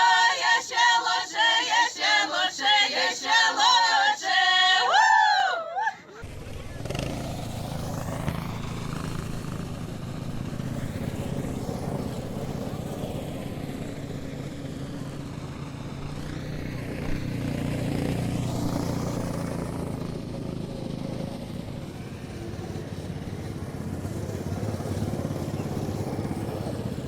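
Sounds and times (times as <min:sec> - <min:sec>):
snowmobile engine running: 0:06.2 - 0:27.0.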